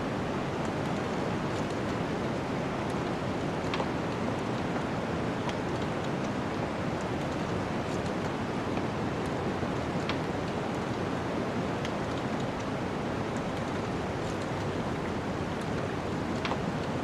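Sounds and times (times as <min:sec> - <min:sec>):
wood fire crackling: 0:11.8 - 0:17.0.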